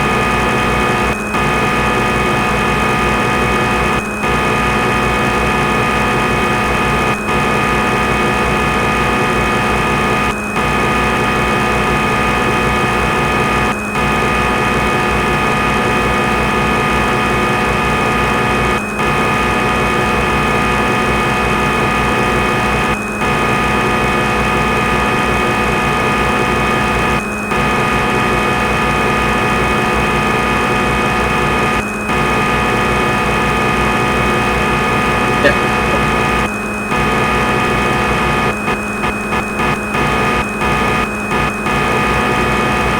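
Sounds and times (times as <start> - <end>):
steady machine hum: 35.1 - 36.5.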